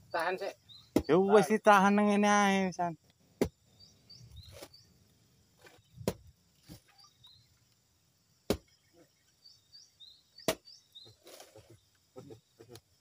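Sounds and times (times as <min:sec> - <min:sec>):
faint high chirping: 0:06.6 - 0:07.8.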